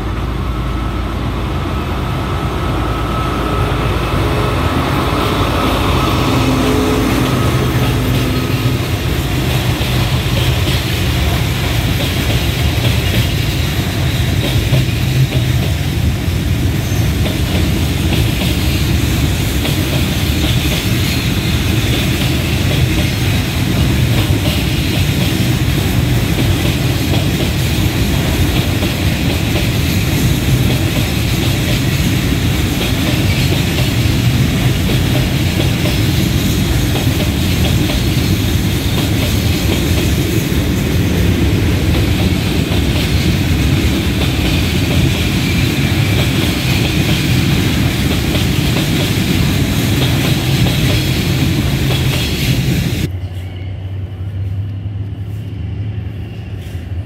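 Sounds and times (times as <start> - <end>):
diesel locomotive engine: 0.0 - 57.0
train wheels clacking on rails: 2.2 - 53.1.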